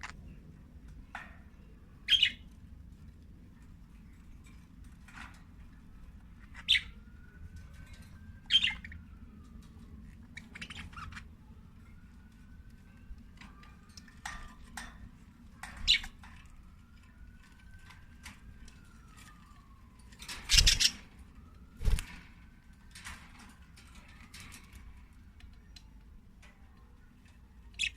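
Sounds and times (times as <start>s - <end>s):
budgies chirping: 2.1s - 2.4s, 6.5s - 7.0s, 8.5s - 9.0s, 10.3s - 11.2s, 20.5s - 21.0s.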